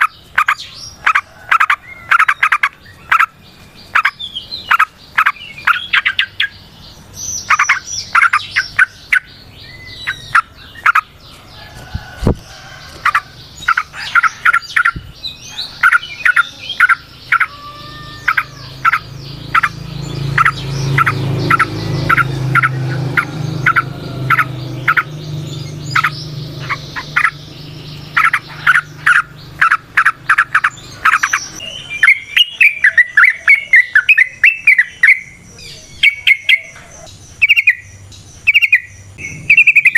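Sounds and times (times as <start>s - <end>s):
bird chirping in fast runs: 0.0s - 39.9s
low hum: 39.0s - 39.9s.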